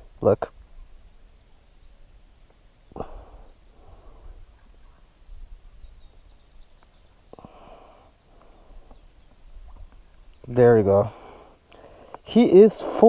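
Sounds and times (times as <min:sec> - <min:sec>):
faint soft clicks: 0:06.7 - 0:07.0.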